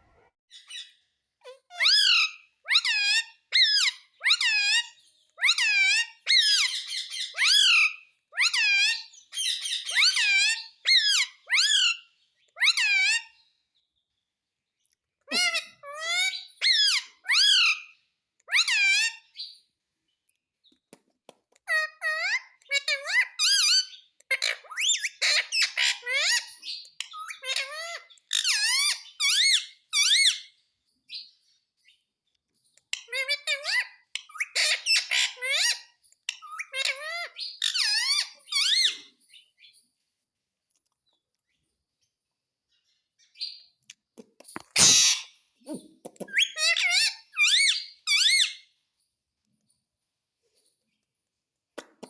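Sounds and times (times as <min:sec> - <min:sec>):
parrot calling: 0:00.6 - 0:12.0, 0:12.6 - 0:13.4, 0:15.2 - 0:19.4, 0:21.7 - 0:30.5, 0:32.9 - 0:39.2, 0:43.3 - 0:48.8.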